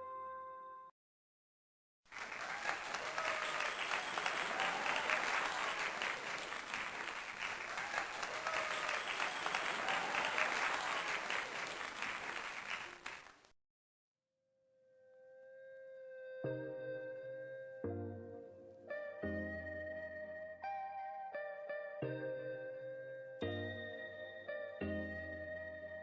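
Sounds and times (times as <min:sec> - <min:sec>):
crowd applause: 0:02.1 - 0:13.5.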